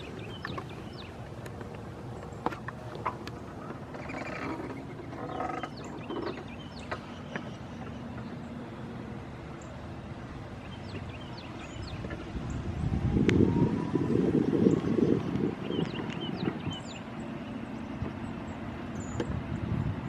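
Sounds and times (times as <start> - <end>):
songbirds chip notes: 0.0 - 20.0
rising whine: 9.0 - 17.2.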